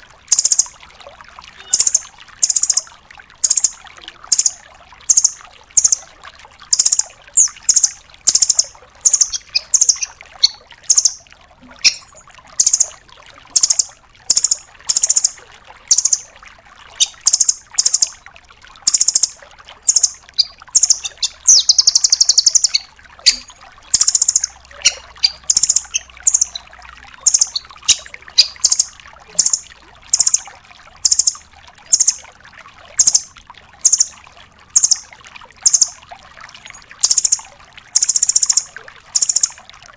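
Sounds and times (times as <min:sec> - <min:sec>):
nuthatch trilled calls: 0:00.3 - 0:00.7, 0:01.6 - 0:02.8, 0:03.4 - 0:03.7, 0:04.3 - 0:06.0, 0:06.7 - 0:11.2, 0:11.8 - 0:12.9, 0:13.6 - 0:15.3, 0:15.9 - 0:16.2, 0:17.0 - 0:18.1, 0:18.9 - 0:19.3, 0:19.9 - 0:30.4, 0:31.0 - 0:32.2, 0:33.0 - 0:34.1, 0:34.8 - 0:35.0, 0:35.6 - 0:35.9, 0:37.0 - 0:37.4, 0:38.0 - 0:39.5.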